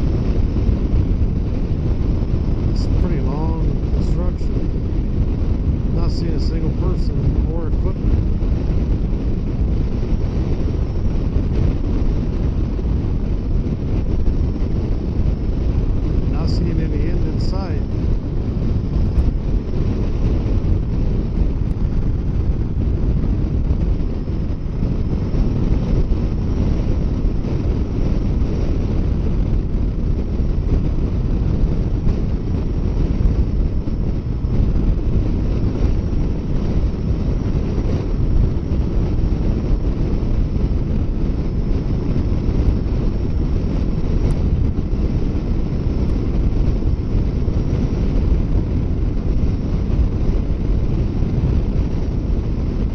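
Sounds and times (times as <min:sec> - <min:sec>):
wind rumble on microphone: 0:00.0 - 0:52.9.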